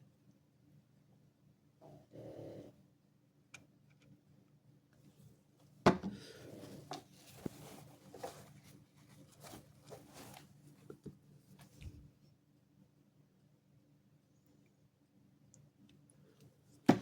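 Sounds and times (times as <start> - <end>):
rustling: 6.5 - 12.1.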